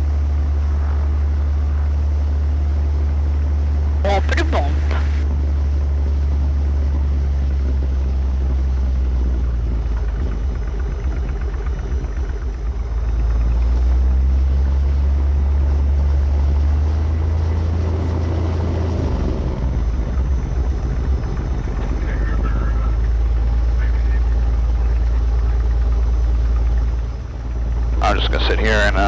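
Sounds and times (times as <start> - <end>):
light airplane engine droning: 0.7 - 20.7, 27.3 - 29.0.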